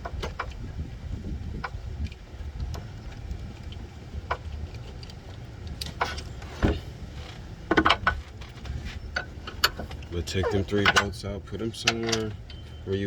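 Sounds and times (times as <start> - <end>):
steady low rumble: 0.0 - 13.0
tools clinking against metal: 11.8 - 13.0.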